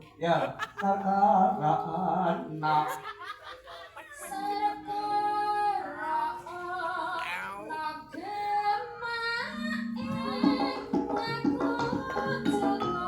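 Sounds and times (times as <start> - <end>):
woman singing ornamented melody: 4.2 - 13.0.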